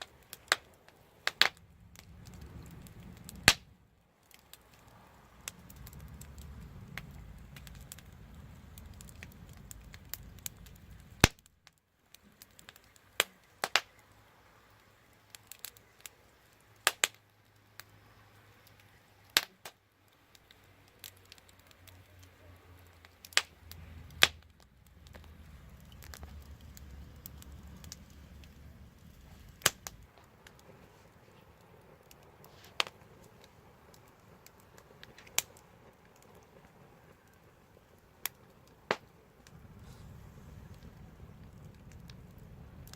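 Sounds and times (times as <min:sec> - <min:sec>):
burning wood popping: 0:00.0 - 0:42.9
wood fire crackling: 0:00.0 - 0:42.9
low rumble: 0:01.5 - 0:04.0, 0:04.6 - 0:11.3, 0:23.5 - 0:32.0, 0:39.3 - 0:42.9.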